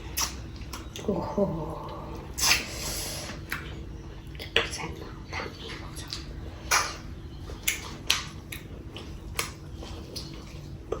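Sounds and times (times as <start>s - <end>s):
person chewing food: 0.0s - 1.1s, 1.9s - 11.0s
mouth clicks and smacks: 0.1s - 1.0s, 2.4s - 2.8s, 5.6s - 11.0s.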